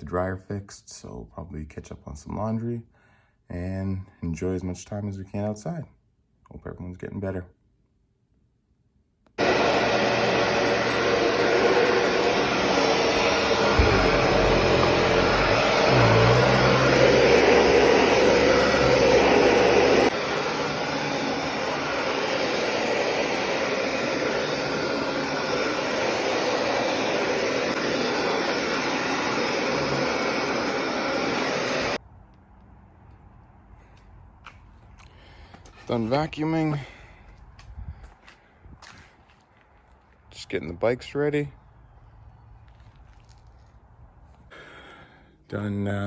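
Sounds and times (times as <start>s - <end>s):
vacuum cleaner running: 9.4s - 32.0s
low bumps: 10.4s - 20.1s.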